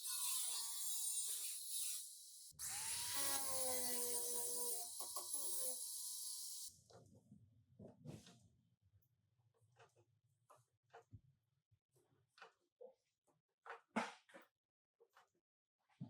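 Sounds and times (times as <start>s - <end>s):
power tool whining: 2.6s - 6.7s.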